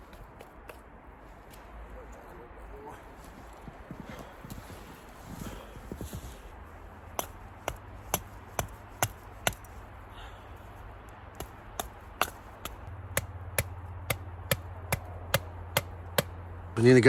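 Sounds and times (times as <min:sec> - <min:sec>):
hand tool striking wood: 0:07.2 - 0:09.7, 0:11.4 - 0:16.4.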